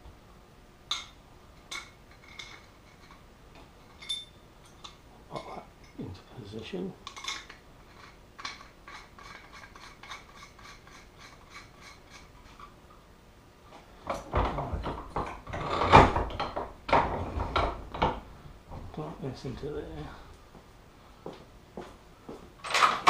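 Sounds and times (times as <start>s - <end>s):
metal knocks and scraping: 0.9s - 6.0s, 7.1s - 12.8s, 14.0s - 19.0s.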